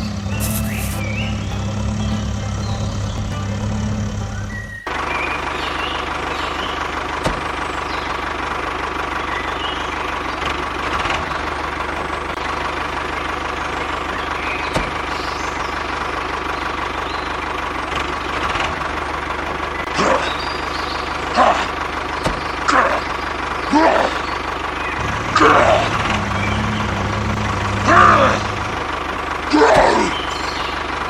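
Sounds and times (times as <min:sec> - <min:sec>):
loud bursts: 0:00.0 - 0:04.2
motor humming and whining: 0:00.0 - 0:05.0, 0:25.0 - 0:29.1.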